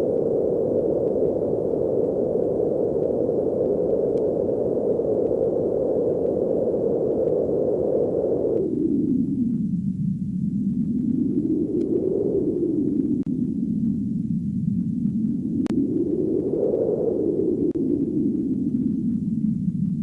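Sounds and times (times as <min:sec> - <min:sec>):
static-like rushing noise: 0:00.0 - 0:20.0.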